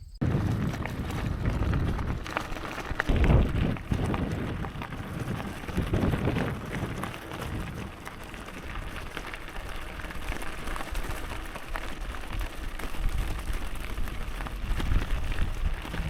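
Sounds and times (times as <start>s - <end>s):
wind rumbling on microphone: 0.0s - 16.0s
bicycle tyres crackling on gravel: 0.2s - 16.0s.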